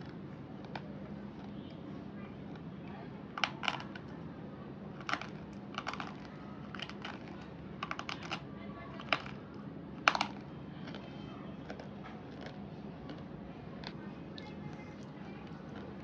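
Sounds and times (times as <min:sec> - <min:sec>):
slate pencils crunching: 0:05.0 - 0:08.4, 0:09.0 - 0:09.4, 0:10.1 - 0:14.0.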